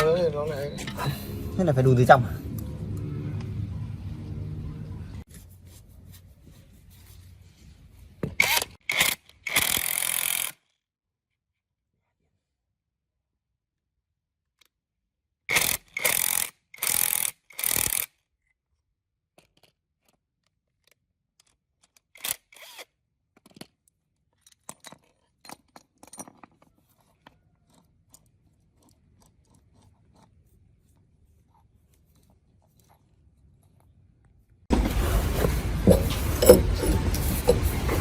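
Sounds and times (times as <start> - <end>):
metal parts clicking and tapping: 23.4 - 30.3, 34.9 - 38.0
hand tool scraping metal: 34.7 - 38.0.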